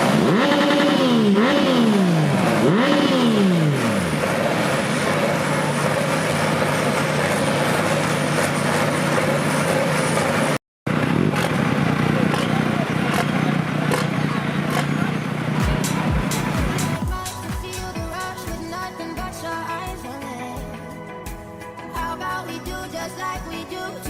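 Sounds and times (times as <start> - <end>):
engine revving: 0.0 - 18.4.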